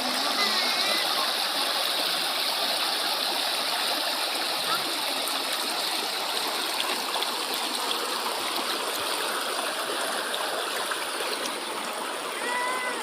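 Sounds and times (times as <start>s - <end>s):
river water babbling over stones: 0.0s - 13.0s.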